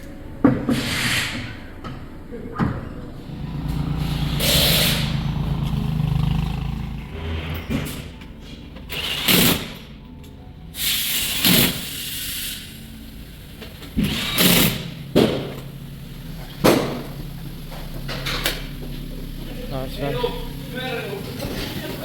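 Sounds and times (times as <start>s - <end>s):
tyre tool hissing bursts: 3.3s - 7.3s, 10.8s - 22.0s
steady low hum: 11.7s - 22.0s.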